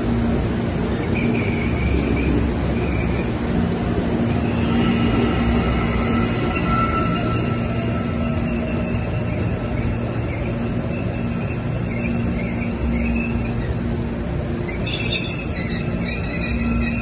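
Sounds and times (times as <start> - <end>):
wheels rumbling on rail: 0.0 - 17.0
wheels screeching: 4.2 - 13.9, 14.5 - 17.0.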